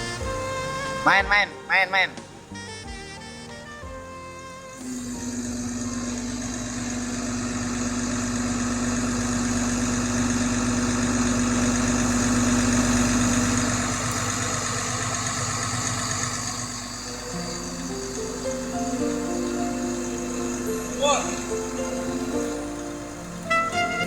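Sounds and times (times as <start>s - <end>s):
truck engine idling: 0.0s - 1.3s, 2.0s - 24.0s.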